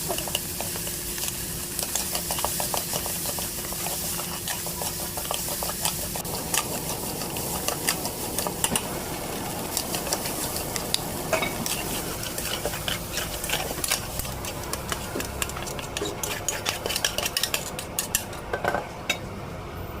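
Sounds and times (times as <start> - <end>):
rice sizzling in a pan: 0.0 - 18.4
metal spatula scraping a pan: 9.7 - 18.4.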